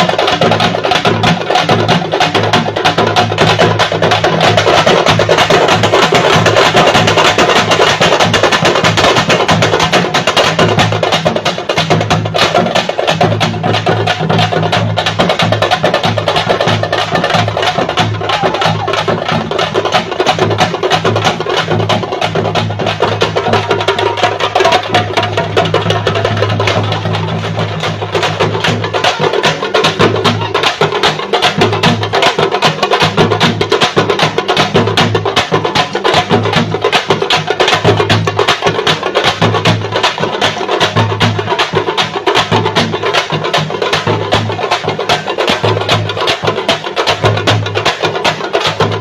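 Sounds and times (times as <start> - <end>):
frame drums beaten with sticks: 0.0 - 49.0.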